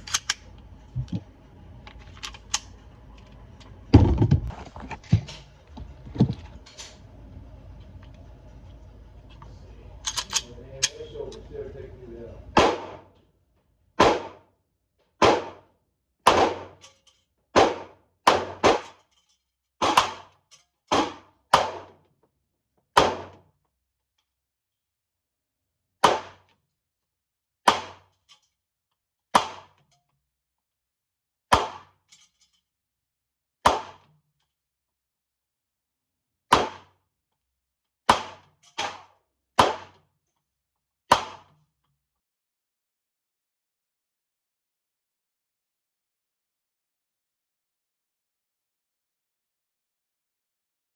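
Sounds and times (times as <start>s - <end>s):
pistol shots: 12.6s - 13.0s, 14.0s - 14.4s, 15.2s - 15.6s, 16.3s - 16.8s, 17.6s - 18.9s, 20.9s - 21.9s, 23.0s - 23.4s, 38.1s - 40.0s, 41.1s - 41.5s
pistol shots echoing indoors: 12.6s - 13.1s, 14.0s - 14.5s, 15.2s - 15.7s, 16.3s - 16.8s, 17.6s - 18.9s.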